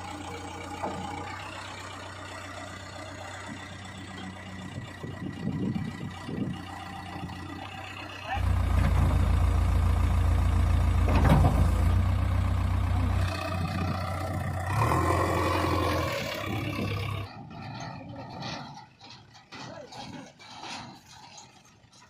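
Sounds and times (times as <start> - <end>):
heavy diesel engine rumbling: 0.0 - 22.0.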